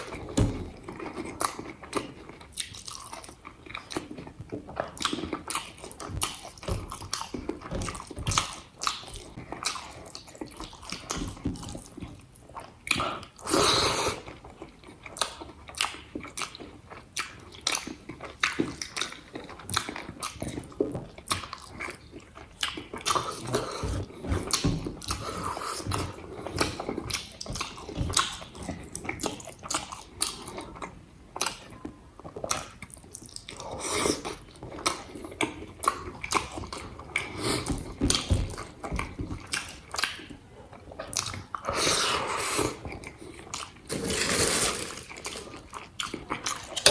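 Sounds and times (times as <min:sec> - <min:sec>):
food crunching: 0:00.0 - 0:13.6, 0:14.2 - 0:46.9
person chewing food: 0:00.0 - 0:46.9.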